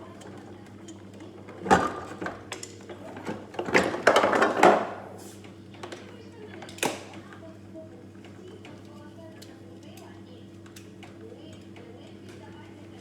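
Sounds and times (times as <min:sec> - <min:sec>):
objects knocking and clattering: 0:03.5 - 0:04.9.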